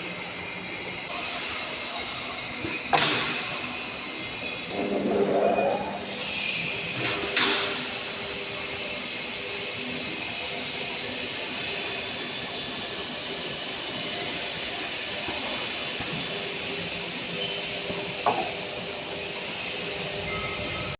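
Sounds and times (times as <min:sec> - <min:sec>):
cutting saw whirring: 0:03.7 - 0:20.1.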